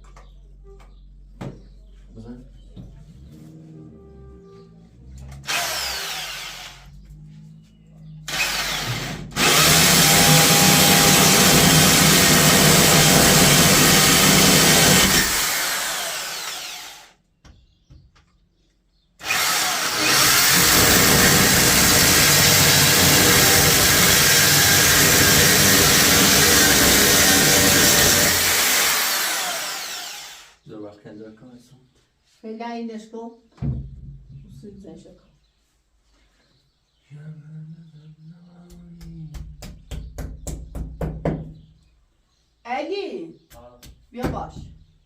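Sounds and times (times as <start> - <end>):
power tool running: 5.4 - 6.9, 8.3 - 17.2, 19.2 - 30.6.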